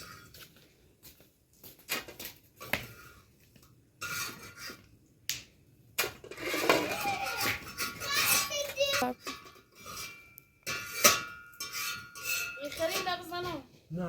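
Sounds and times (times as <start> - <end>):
kitchenware clattering: 6.3 - 13.6.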